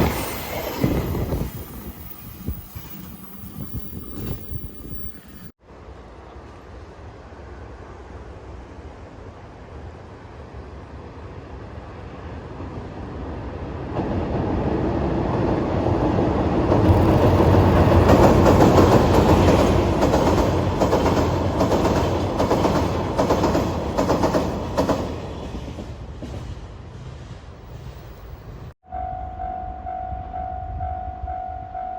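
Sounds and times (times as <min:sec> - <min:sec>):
freight train wheels clattering: 0:16.6 - 0:28.0.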